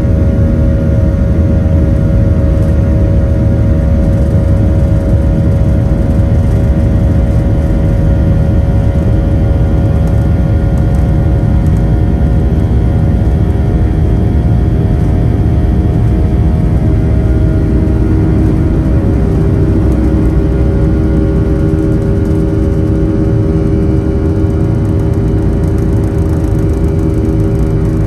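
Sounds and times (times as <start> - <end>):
jet engines rumbling in cabin: 0.0 - 28.0.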